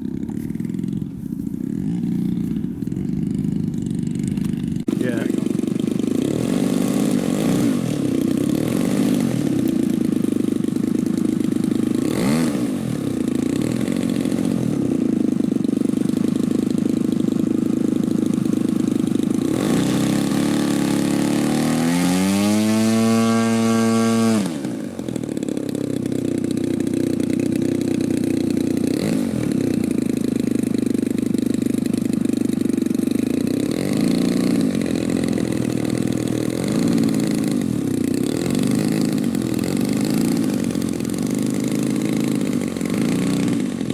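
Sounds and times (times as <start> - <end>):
model plane engine drone: 0.0 - 43.9.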